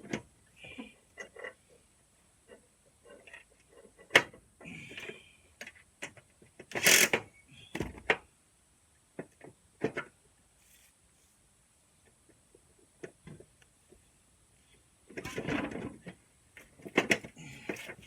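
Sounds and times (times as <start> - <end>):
tools and parts clicking: 6.7 - 7.2.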